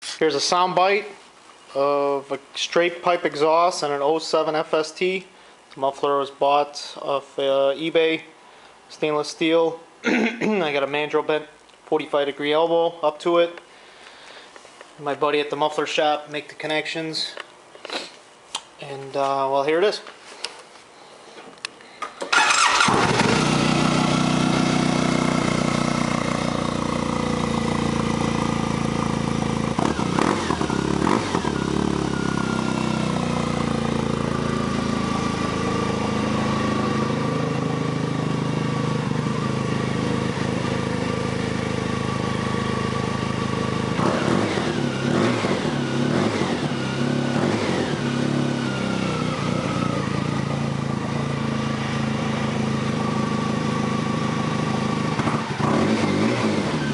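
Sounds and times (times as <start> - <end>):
engine throttle blips: 22.3 - 56.9
snowmobile engine idling: 23.0 - 56.9.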